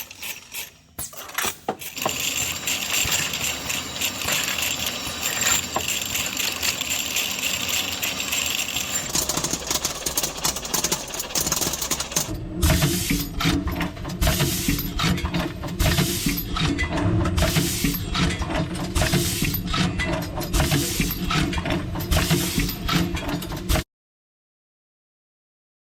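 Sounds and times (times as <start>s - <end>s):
machinery metallic clicking: 0.0s - 23.8s.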